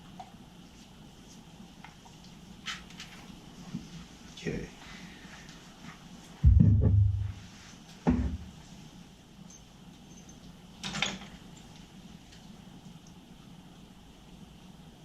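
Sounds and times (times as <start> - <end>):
dull thuds: 6.4 - 7.5.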